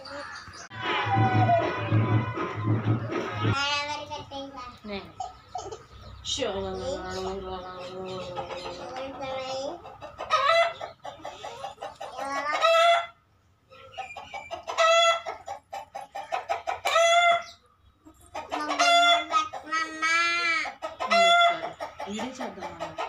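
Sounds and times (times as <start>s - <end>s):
rooster crowing: 0.7s - 3.6s
hens clucking: 4.8s - 23.0s.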